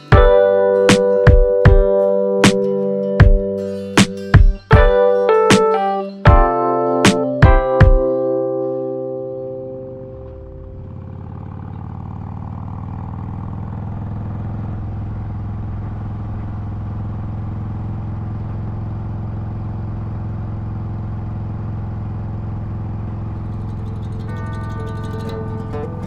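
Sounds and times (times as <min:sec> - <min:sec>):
motorcycle engine running: 0:00.0 - 0:02.5, 0:09.7 - 0:26.0.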